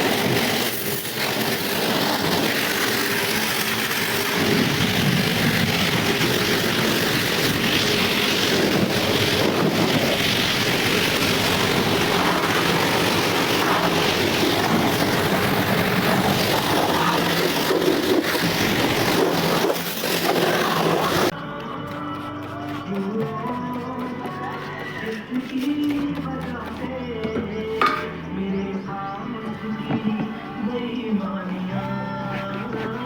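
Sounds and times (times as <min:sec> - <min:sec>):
loud rushing hiss: 0:00.0 - 0:21.3.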